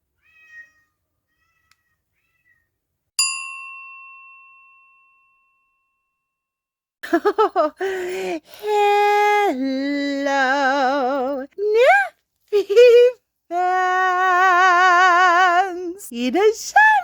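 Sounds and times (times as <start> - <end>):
cat meowing: 0.2 - 2.7
bell ding: 3.2 - 6.4.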